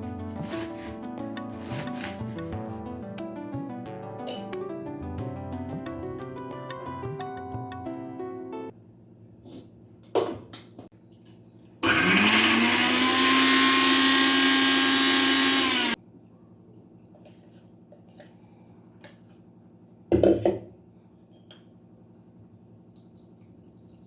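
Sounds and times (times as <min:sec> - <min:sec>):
blender motor whining: 0:11.8 - 0:16.0.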